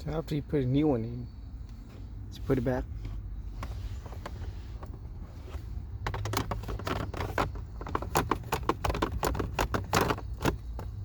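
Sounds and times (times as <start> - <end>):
plastic clicks and scrapes: 6.0 - 10.9.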